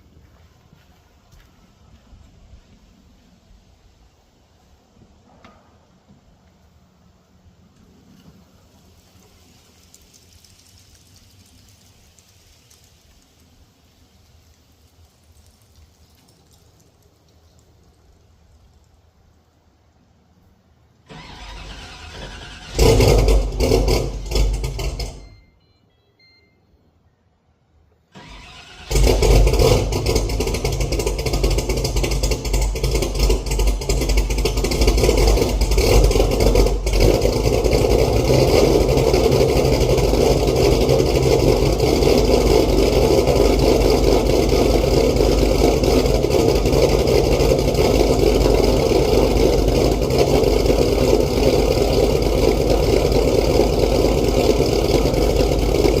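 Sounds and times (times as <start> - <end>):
car engine cranking and idling: 14.8 - 25.6, 28.1 - 56.0.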